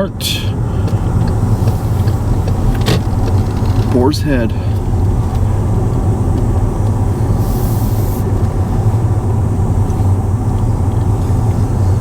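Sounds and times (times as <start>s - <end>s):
car interior rumble: 0.0s - 12.0s
brief high hiss: 7.4s - 8.3s.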